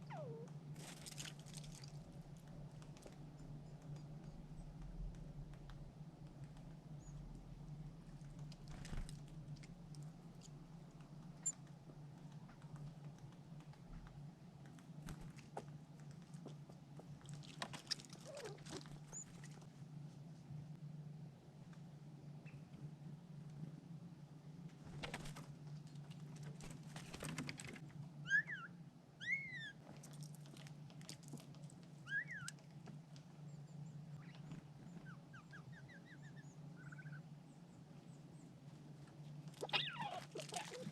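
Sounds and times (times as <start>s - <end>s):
rising and falling animal calls: 0.0s - 0.5s, 28.2s - 29.8s, 39.6s - 40.9s
steady low hum: 0.0s - 40.9s.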